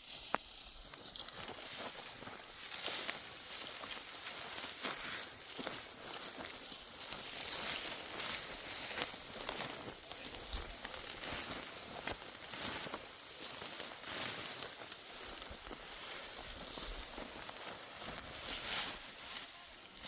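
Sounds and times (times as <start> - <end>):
dry wheat stalks rustling: 0.0 - 20.0.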